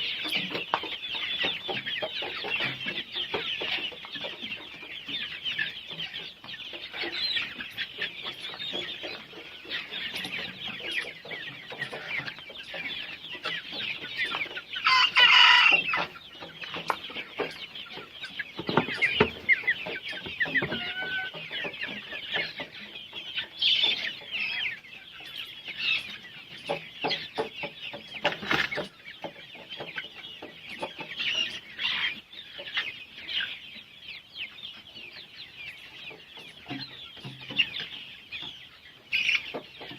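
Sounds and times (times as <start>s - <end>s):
chickens clucking and cheeping: 0.0s - 39.9s
loud chicken call: 14.8s - 16.0s, 20.6s - 21.4s.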